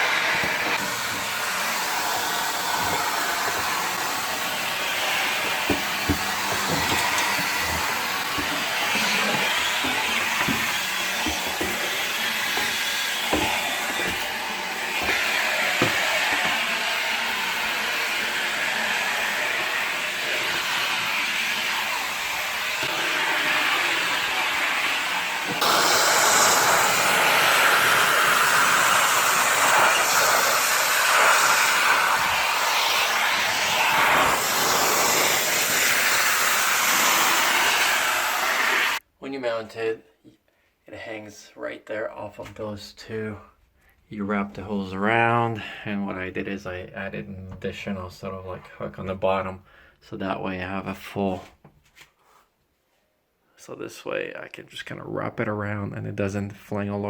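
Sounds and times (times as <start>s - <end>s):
vacuum suction rushing: 0.0s - 39.0s
vacuum tool knocking on surfaces: 2.6s - 16.6s, 25.5s - 26.7s.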